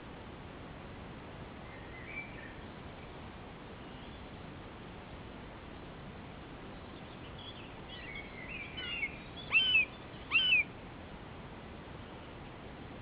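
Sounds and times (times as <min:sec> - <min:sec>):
soft bird chirping: 0:01.6 - 0:03.2, 0:03.8 - 0:04.4, 0:06.6 - 0:10.7
loud rising bird calls: 0:07.9 - 0:10.7.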